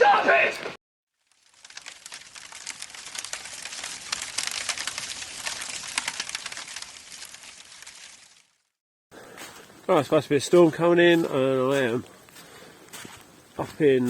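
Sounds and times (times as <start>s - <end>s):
rain pattering: 1.2s - 8.8s.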